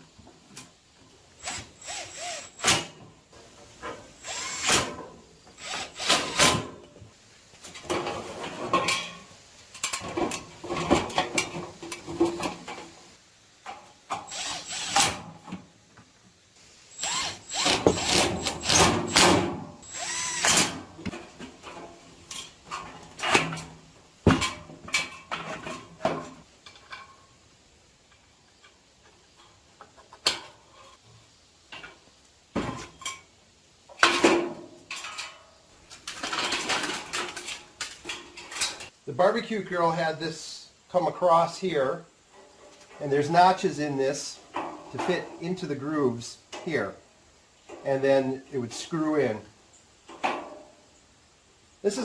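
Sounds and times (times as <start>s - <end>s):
power drill running: 1.4s - 2.9s, 4.2s - 4.9s, 5.6s - 6.5s, 14.3s - 15.2s, 16.9s - 19.2s, 19.8s - 20.8s.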